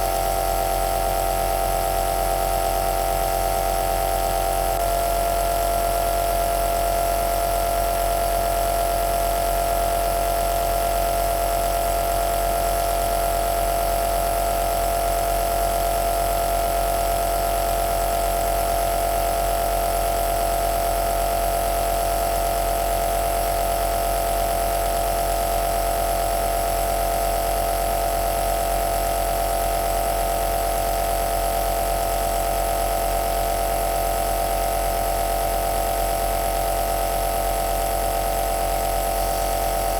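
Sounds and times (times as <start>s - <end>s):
nebulizer motor humming: 38.6s - 39.9s.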